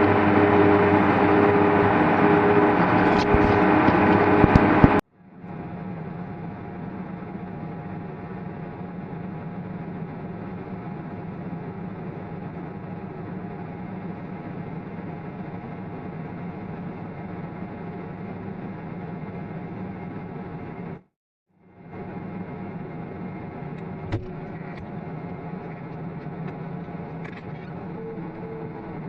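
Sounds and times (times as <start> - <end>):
tractor diesel engine droning: 0.0 - 5.0.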